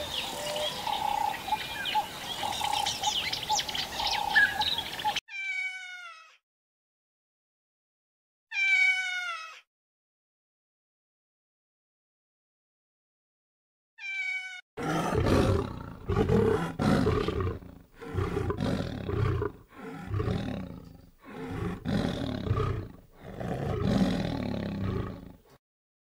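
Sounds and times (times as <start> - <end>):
high-pitched cat meow: 5.3 - 6.4, 8.5 - 9.7, 14.0 - 14.6
tiger roaring: 14.8 - 25.5.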